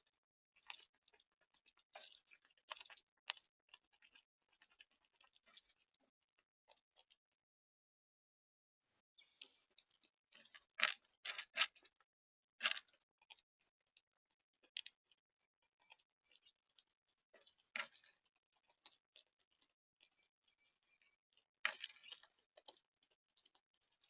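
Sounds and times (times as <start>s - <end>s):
bird cracking and pecking seed: 0.6s - 5.9s, 9.4s - 12.0s, 12.6s - 13.7s, 14.6s - 15.0s, 15.8s - 20.2s, 21.0s - 24.0s.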